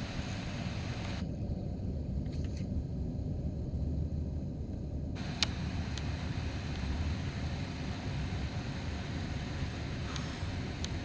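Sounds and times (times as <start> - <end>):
sharp click: 5.2 - 6.1.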